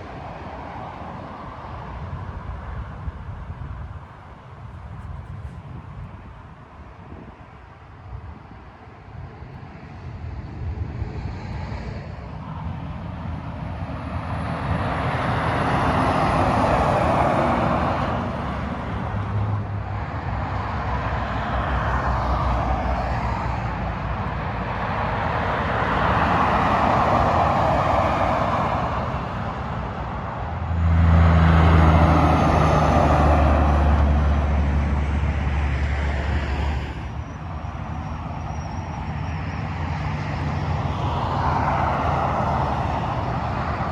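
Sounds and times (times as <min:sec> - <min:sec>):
freeway traffic passing: 0:00.0 - 0:43.9
heavy truck engine drone: 0:21.5 - 0:43.9.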